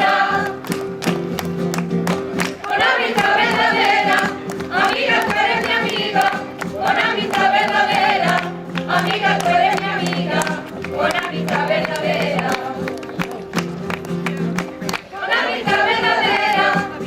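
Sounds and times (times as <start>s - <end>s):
group of voices singing: 0.0s - 0.8s, 2.6s - 13.0s, 14.9s - 17.0s
strummed guitar: 0.0s - 17.0s.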